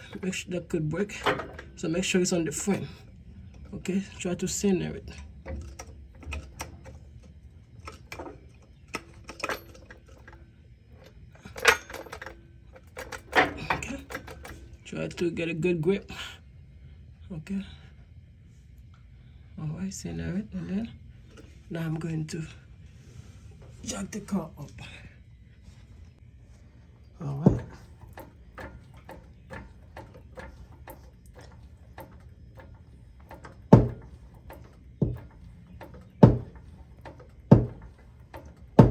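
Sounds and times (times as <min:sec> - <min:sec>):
floor jack handle clicking: 0:27.4 - 0:38.9.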